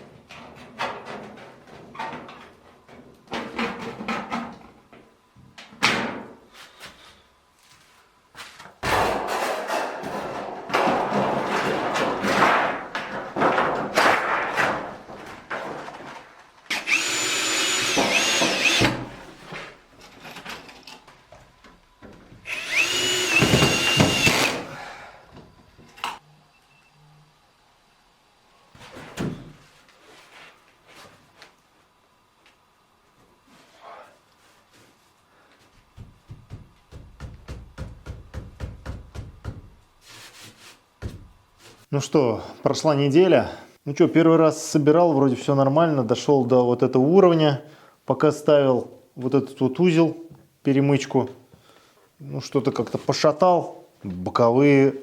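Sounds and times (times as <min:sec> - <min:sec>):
power tool motor whining: 0:16.7 - 0:19.0, 0:22.4 - 0:24.7.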